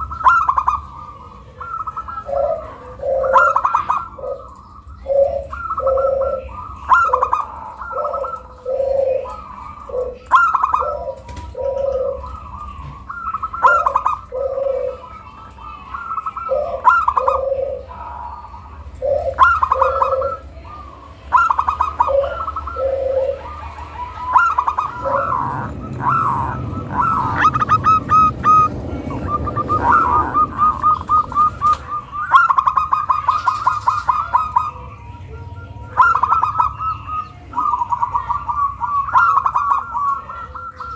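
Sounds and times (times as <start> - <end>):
dove cooing: 0.0 - 40.9
low rushing noise: 23.8 - 32.2.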